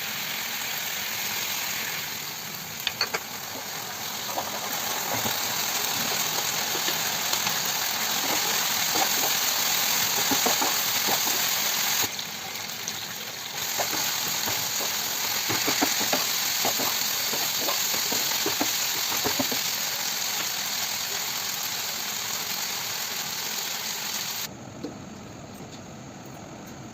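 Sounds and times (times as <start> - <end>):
chicken sizzling in a pan: 0.0 - 24.5
spatula clicking and scraping: 4.3 - 12.1, 13.6 - 20.5.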